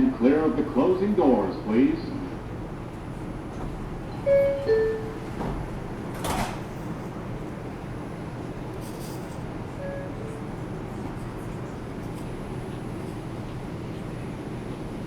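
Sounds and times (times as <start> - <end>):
stopped train hum: 0.0 - 15.0
subway doors shutting knock: 1.7 - 12.7
two-tone door chime: 4.2 - 5.2, 9.8 - 10.3.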